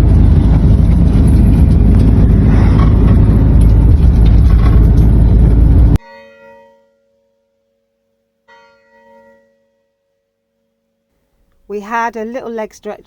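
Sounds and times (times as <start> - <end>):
vehicle road and engine rumble: 0.0 - 6.0.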